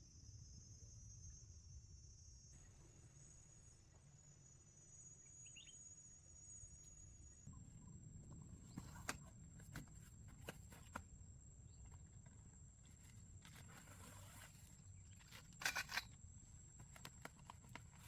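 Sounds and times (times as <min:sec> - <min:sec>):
faint high whine: 0:00.0 - 0:18.0
soft rustle: 0:08.6 - 0:11.1, 0:11.7 - 0:18.0.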